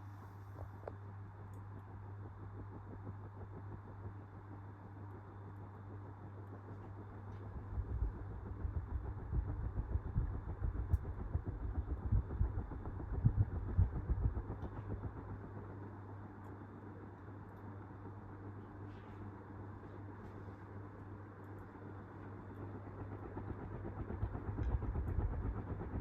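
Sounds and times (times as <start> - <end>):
ceiling fan motor hum: 0.0 - 26.0
air gusts buffeting microphone: 7.5 - 15.4.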